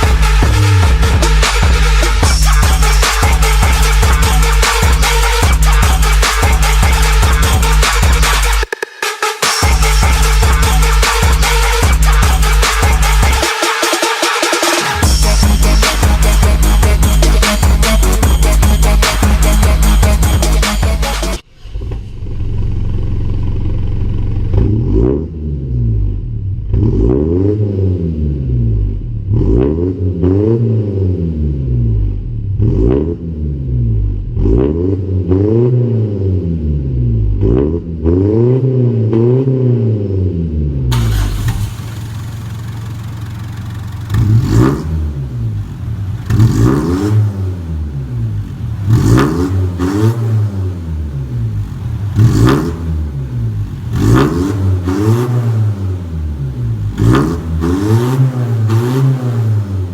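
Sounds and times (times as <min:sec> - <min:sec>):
car engine revving: 0:00.0 - 0:08.8, 0:09.6 - 0:59.9
engine idling: 0:40.9 - 0:58.0.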